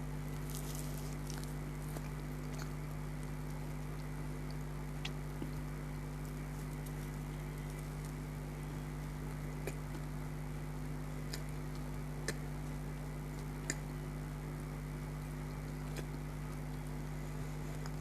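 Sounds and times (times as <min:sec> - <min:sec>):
steady low hum: 0:00.0 - 0:18.0
mouth clicks while chewing: 0:00.4 - 0:08.3, 0:09.3 - 0:10.2, 0:11.2 - 0:14.0, 0:15.3 - 0:17.0.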